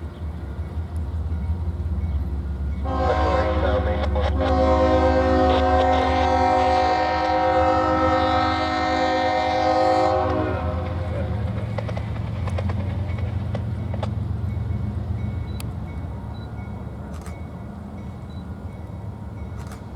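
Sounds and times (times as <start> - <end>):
passing train rumble: 0.0 - 19.9
locomotive air horn blast: 2.8 - 11.1
wheels clicking over rail joints: 10.7 - 16.0.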